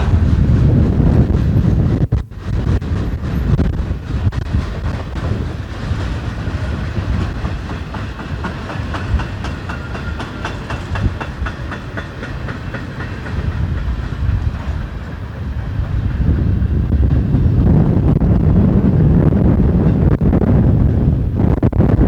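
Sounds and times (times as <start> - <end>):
train wheels clicking over rail joints: 0.0 - 16.3
wind rumbling on microphone: 0.0 - 22.0.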